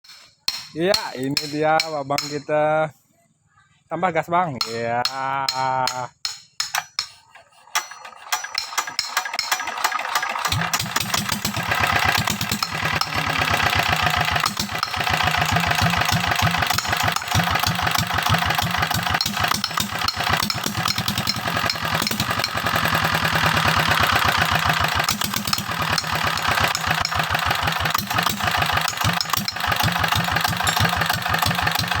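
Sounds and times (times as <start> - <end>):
diesel engine knocking: 6.7 - 32.0.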